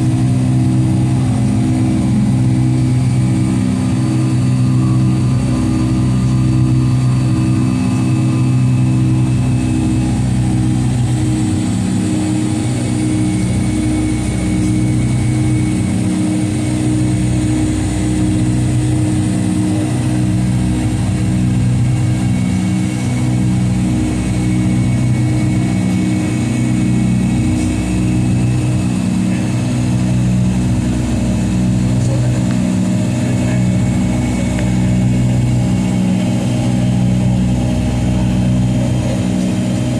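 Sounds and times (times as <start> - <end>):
airplane engine drone: 0.0 - 39.9
pulsing low hums: 0.0 - 39.9.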